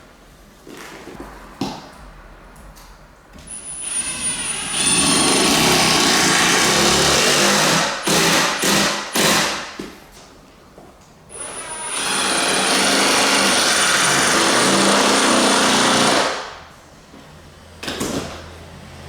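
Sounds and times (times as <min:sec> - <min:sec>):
power drill driving screw into wood: 0:03.8 - 0:09.7, 0:11.3 - 0:16.5.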